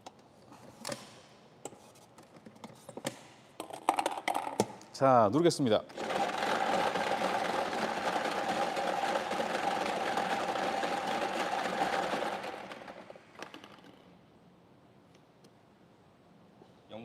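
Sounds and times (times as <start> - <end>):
lottery machine whirring rattle: 5.9 - 14.0.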